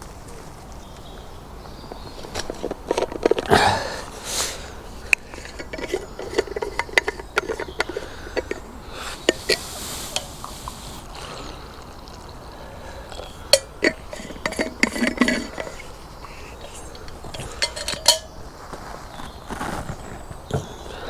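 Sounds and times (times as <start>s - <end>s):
cup and flask clinking: 5.4s - 11.1s, 13.1s - 16.0s, 16.6s - 18.4s.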